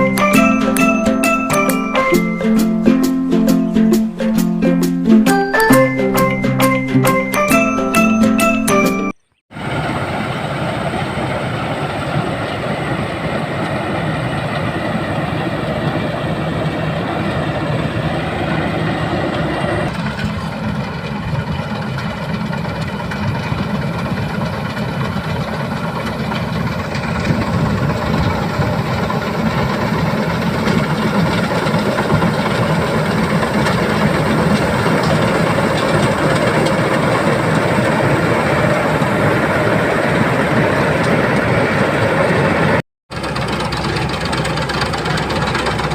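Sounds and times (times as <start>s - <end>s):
combine harvester diesel engine: 0.0s - 8.8s, 9.6s - 45.9s.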